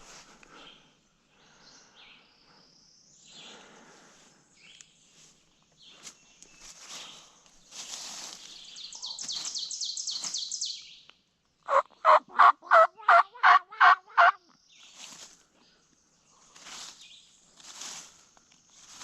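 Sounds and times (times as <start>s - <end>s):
turkey yelps: 11.7s - 14.4s.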